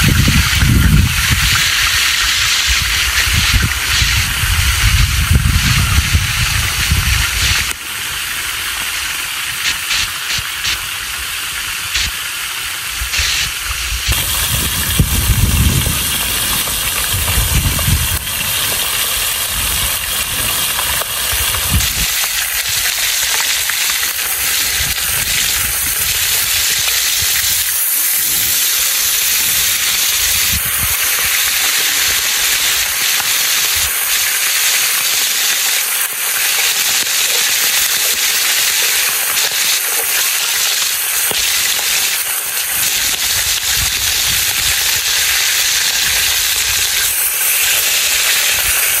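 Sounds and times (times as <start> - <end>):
wind rumble on microphone: 0.0 - 7.8, 13.0 - 23.4, 24.2 - 28.6, 29.2 - 33.0, 42.8 - 47.2
fish sizzling in hot oil: 0.0 - 49.0.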